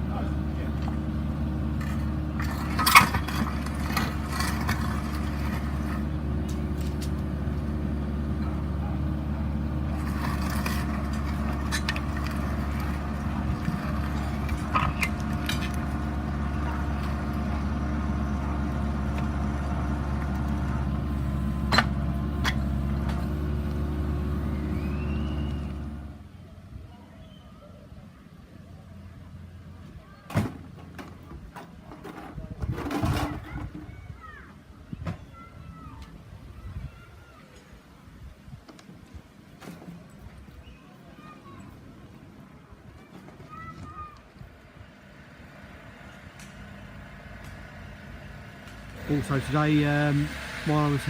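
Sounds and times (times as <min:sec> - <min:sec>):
engine running steadily: 0:00.0 - 0:27.0, 0:41.2 - 0:51.0.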